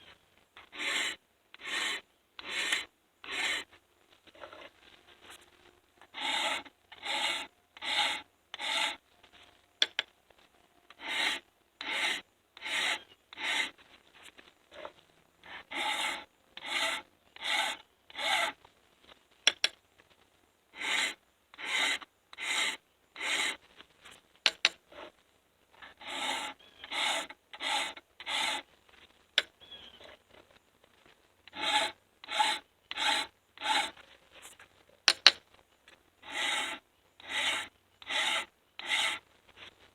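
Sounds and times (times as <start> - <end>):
hand file rasping on chain: 0.6 - 3.7, 6.0 - 9.0, 10.9 - 13.8, 14.8 - 18.6, 20.8 - 23.6, 25.8 - 28.7, 31.5 - 34.0, 36.2 - 39.2.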